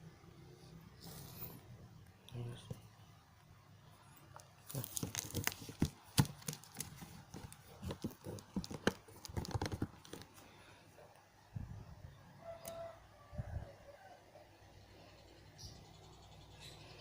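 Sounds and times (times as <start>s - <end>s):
rustling and crinkling: 4.4s - 10.7s.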